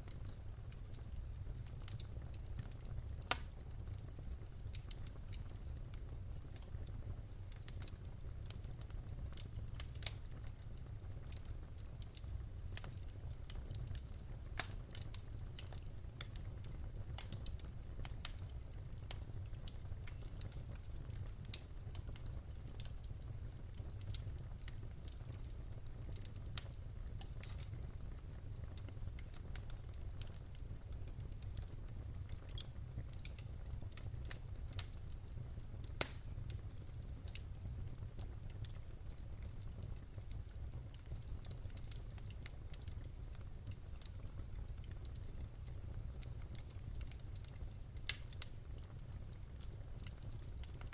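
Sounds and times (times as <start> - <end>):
low rumble of flames: 0.0 - 50.9
wood fire crackling and popping: 0.0 - 50.9.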